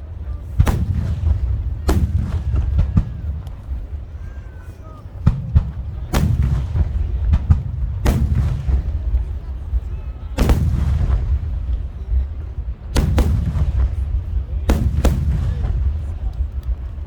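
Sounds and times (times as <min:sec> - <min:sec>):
firework shells bursting with booms: 0:00.0 - 0:04.2, 0:05.1 - 0:17.0
low rumble: 0:05.2 - 0:17.0.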